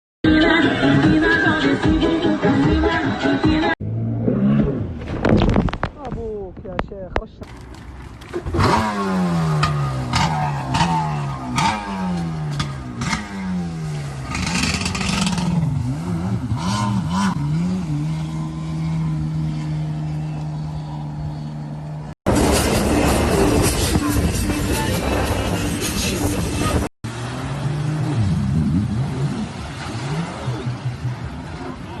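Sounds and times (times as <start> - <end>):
knocks and splashes: 4.8 - 15.0
jet ski engine revving: 7.5 - 32.0.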